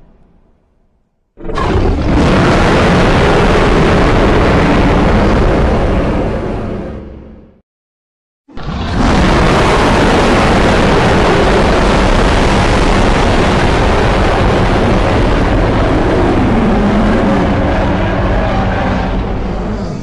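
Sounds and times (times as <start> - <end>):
monster roar: 1.4 - 6.0, 8.5 - 20.0.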